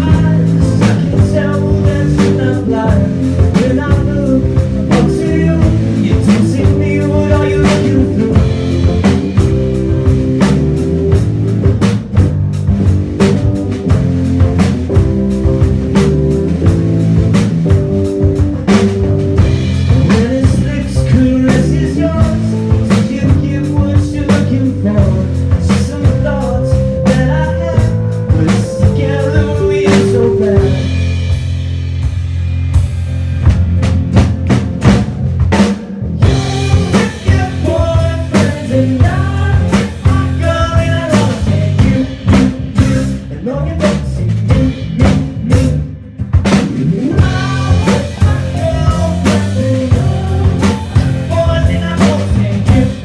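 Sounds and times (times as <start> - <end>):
drum kit beat: 0.0 - 53.0
rock band playing: 0.0 - 53.0
held lead guitar notes: 22.0 - 31.8.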